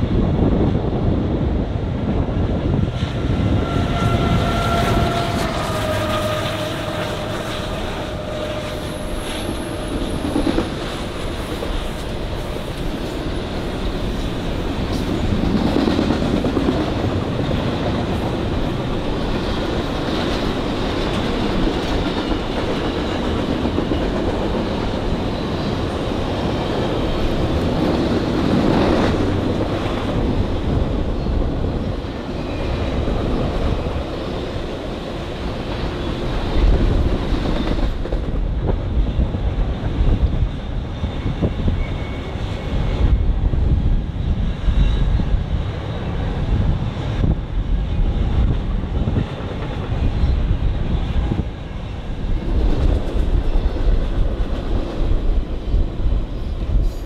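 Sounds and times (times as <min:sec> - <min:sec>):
railroad cars rolling past: 0:00.0 - 0:57.0.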